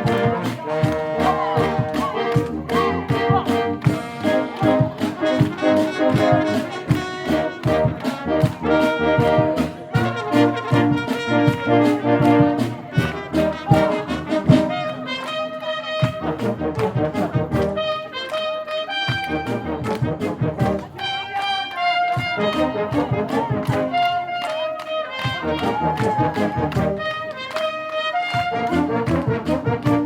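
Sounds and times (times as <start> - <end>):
steady drum beat: 0.0 - 14.9, 22.1 - 24.2, 25.2 - 27.1
trombones and trumpets: 0.0 - 30.0.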